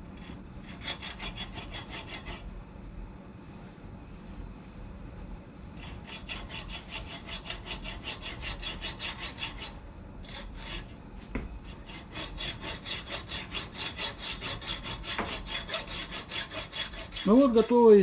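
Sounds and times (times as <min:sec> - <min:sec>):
hacksaw rasping through metal: 0:00.2 - 0:02.5, 0:05.8 - 0:11.0, 0:11.6 - 0:18.0
single knock: 0:11.3 - 0:11.5.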